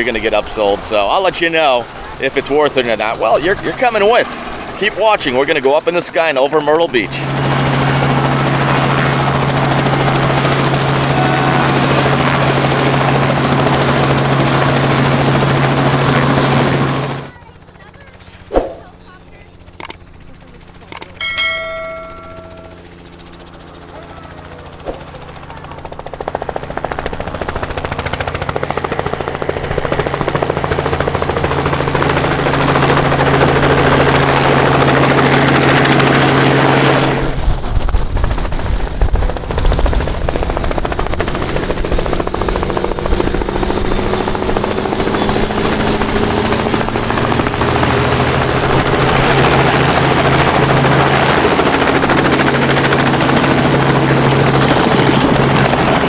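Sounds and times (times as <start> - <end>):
helicopter rotor beat: 0.0 - 56.0
gusty low rumble: 37.3 - 44.7.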